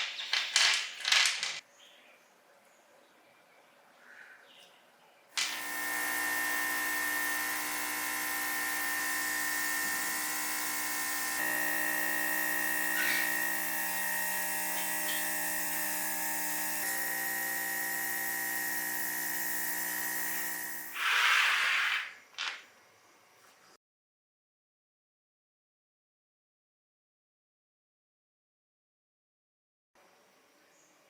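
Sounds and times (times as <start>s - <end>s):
small electric motor whining: 5.4s - 22.1s.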